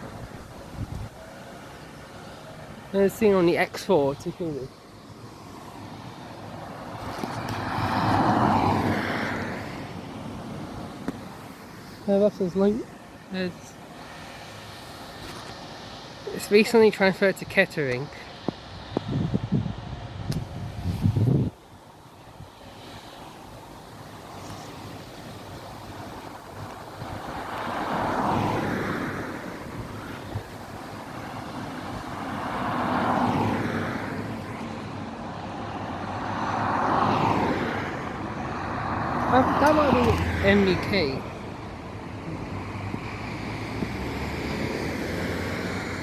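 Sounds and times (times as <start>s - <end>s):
motor vehicle passing by: 6.8s - 12.6s, 27.1s - 34.7s, 36.1s - 46.0s.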